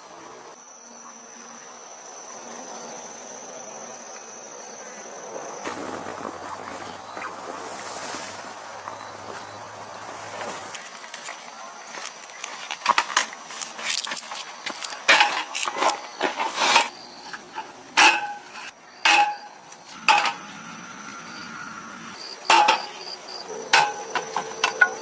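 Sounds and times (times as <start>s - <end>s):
insects buzzing: 0.0s - 25.0s
utensils knocking and clinking: 18.0s - 20.5s, 22.5s - 23.0s.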